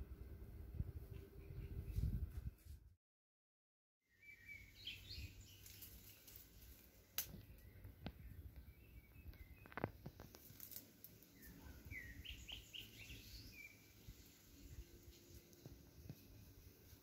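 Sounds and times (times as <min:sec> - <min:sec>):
small bird chirping: 0:04.1 - 0:16.2.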